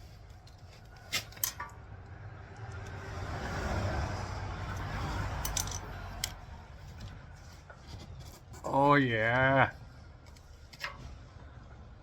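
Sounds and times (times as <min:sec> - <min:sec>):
vehicle passing by: 0:01.7 - 0:07.4.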